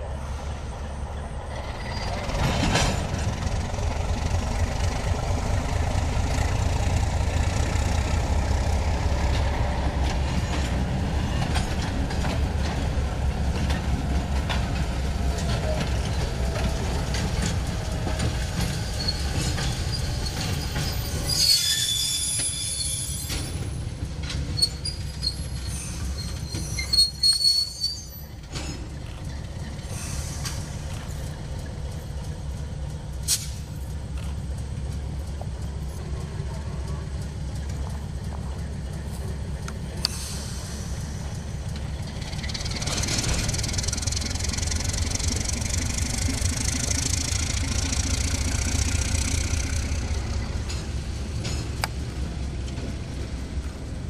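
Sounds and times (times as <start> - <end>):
diesel locomotive engine rumble: 0.0 - 54.0
rail cars rattling: 0.0 - 54.0
high-pitched wheel squeal: 1.6 - 2.3, 18.7 - 23.8, 24.6 - 28.4.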